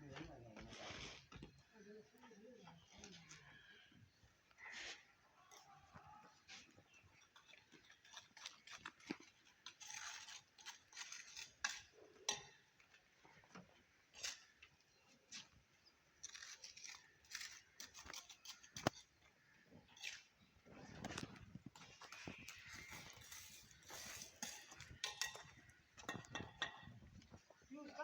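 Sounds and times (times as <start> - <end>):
masonry scraping and tapping: 5.9 - 15.6, 16.2 - 27.6.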